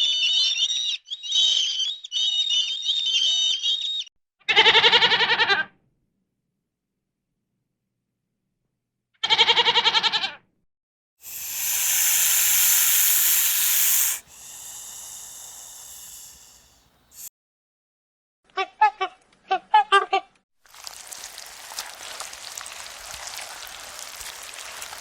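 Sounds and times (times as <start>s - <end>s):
short quavering bleat: 4.5s - 5.7s, 9.2s - 10.4s
burst of noise: 11.2s - 17.3s
loud hiss: 11.2s - 17.3s.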